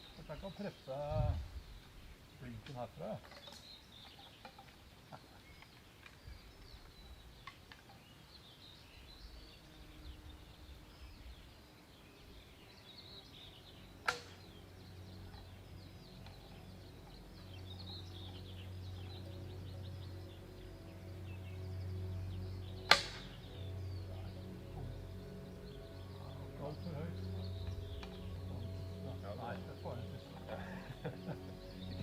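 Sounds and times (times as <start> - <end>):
small birds chirping: 0.0 - 32.0
steady music: 12.2 - 32.0
arrow shot from bow crack: 14.0 - 14.4, 22.9 - 23.4.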